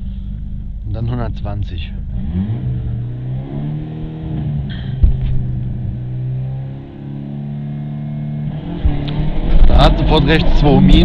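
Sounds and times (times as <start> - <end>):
car engine under load: 0.0 - 11.0
sharp knock: 4.7 - 5.5.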